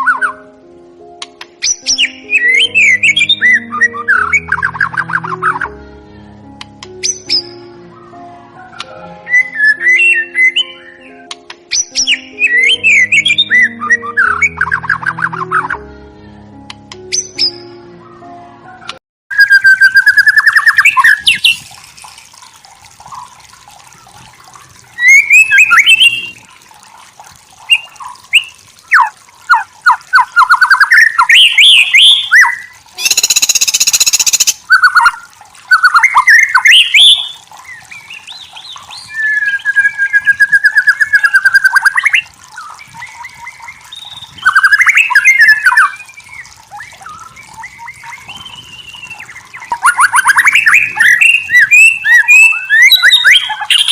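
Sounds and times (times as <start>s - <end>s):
bird singing whistled phrases: 1.6s - 5.6s, 9.3s - 15.7s, 19.3s - 21.6s, 25.0s - 26.4s, 27.7s - 53.9s.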